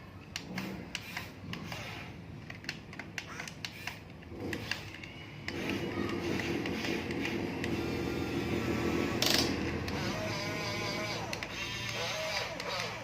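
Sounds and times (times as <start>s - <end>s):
toy gearbox clicking: 0.3s - 13.0s
small electric motor whining: 3.3s - 13.0s.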